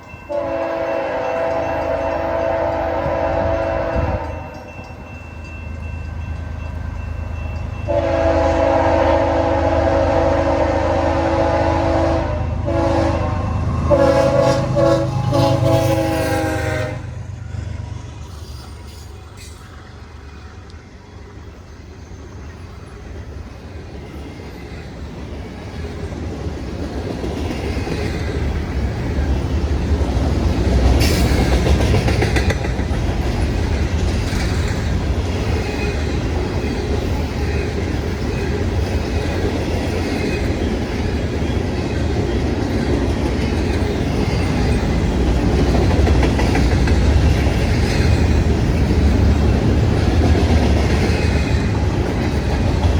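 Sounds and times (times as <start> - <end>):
freight train rumbling past: 0.0 - 52.9
wheels clicking over rail joints: 22.6 - 52.9.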